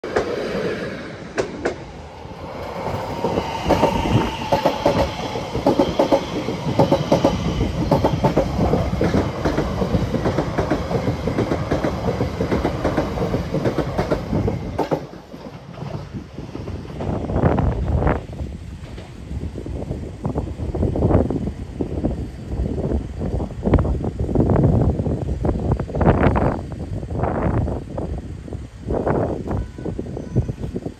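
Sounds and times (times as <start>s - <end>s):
train wheels clattering over rail joints: 3.2s - 17.9s.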